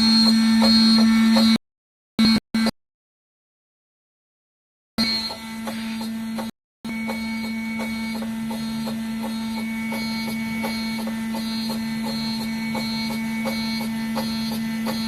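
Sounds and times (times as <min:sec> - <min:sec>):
milling machine spindle hum: 0:00.0 - 0:01.6, 0:05.0 - 0:15.0.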